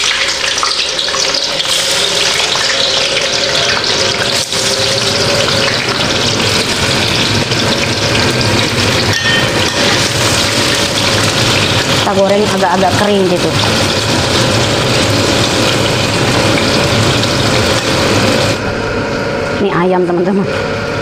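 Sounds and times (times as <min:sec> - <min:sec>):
tofu sizzling in hot oil: 0:00.0 - 0:18.6.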